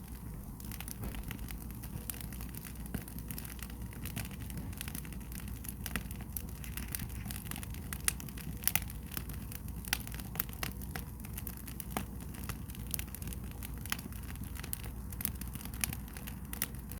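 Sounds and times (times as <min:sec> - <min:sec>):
wood fire crackling: 0:00.0 - 0:16.9.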